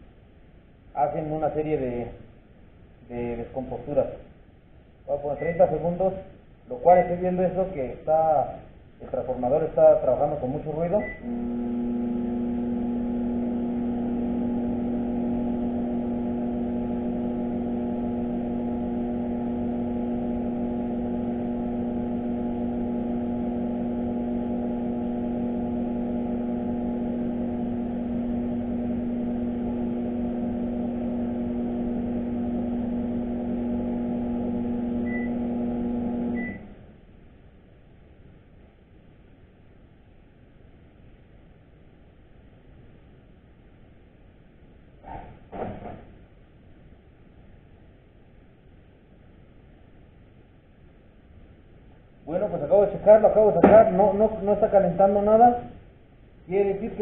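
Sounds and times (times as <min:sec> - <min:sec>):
microwave oven humming: 0:10.8 - 0:37.0
short beep: 0:36.4 - 0:36.7.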